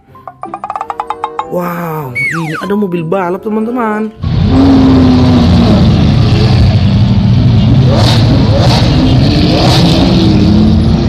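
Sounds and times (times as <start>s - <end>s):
car engine revving: 4.2s - 11.0s.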